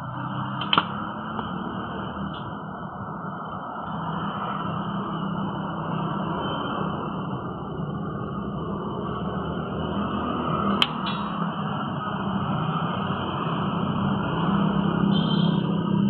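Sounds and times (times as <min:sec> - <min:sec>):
sharp click: 0:00.6 - 0:01.0, 0:10.7 - 0:11.4.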